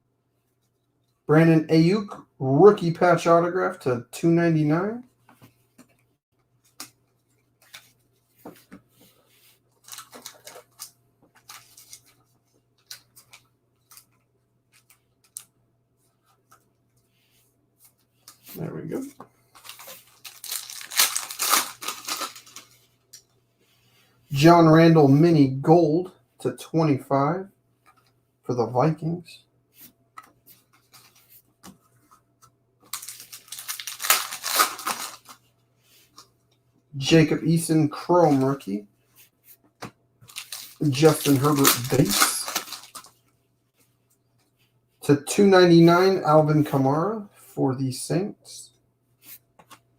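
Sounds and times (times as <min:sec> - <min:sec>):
cards and packaging clicks and rustles: 0:09.7 - 0:15.5, 0:18.2 - 0:23.3, 0:30.2 - 0:31.8, 0:32.8 - 0:35.4, 0:38.2 - 0:38.8, 0:39.8 - 0:43.3
wrapper tearing and crinkling: 0:09.8 - 0:10.9, 0:19.6 - 0:22.8, 0:32.9 - 0:35.4, 0:40.3 - 0:43.1.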